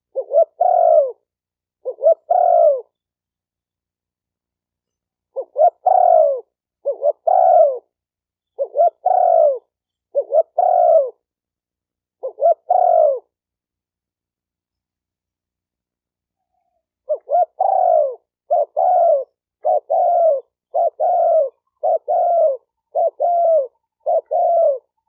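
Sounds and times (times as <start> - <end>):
dove cooing: 0.0 - 2.9, 5.3 - 7.9, 8.6 - 11.2, 12.2 - 13.4, 16.5 - 25.0.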